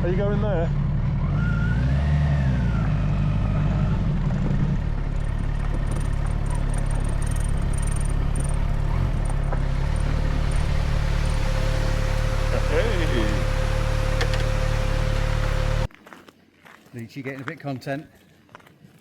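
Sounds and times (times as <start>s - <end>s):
engine rumbling steadily: 0.0s - 15.9s.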